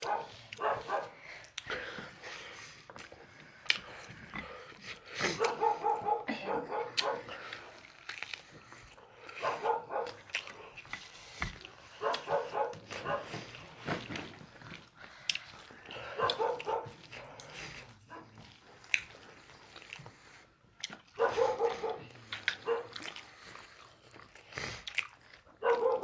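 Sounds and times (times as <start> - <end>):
dog yipping and barking: 0.0 - 1.2, 5.4 - 7.2, 9.4 - 10.2, 12.0 - 13.3, 16.2 - 16.9, 21.2 - 22.0, 22.7 - 22.9, 25.6 - 26.0.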